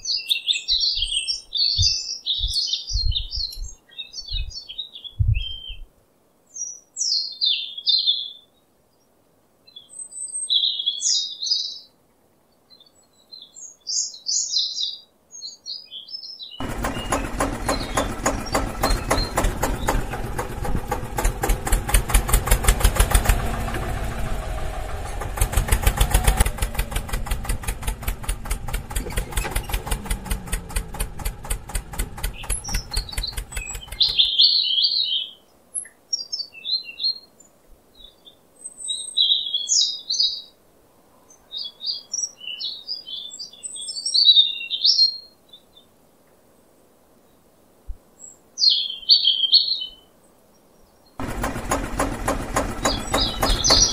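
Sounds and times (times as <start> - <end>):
birds chirping: 0.0 - 5.9, 9.7 - 37.4, 50.8 - 53.9
toy tractor motor and gears clattering: 16.6 - 24.0, 25.0 - 34.3, 51.2 - 53.9.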